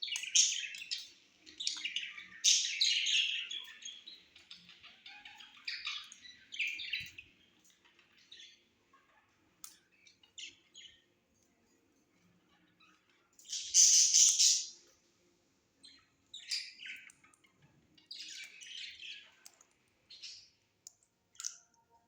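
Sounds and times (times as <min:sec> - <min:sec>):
parrot squawking and chirping: 0:12.5 - 0:14.9.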